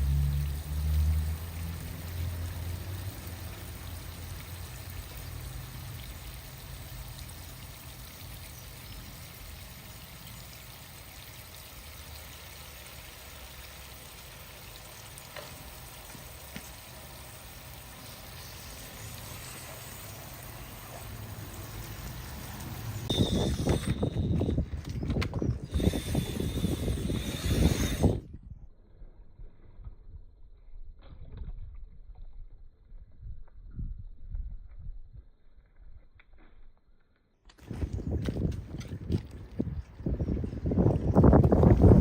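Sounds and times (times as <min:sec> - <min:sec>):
water running: 0:00.0 - 0:24.5.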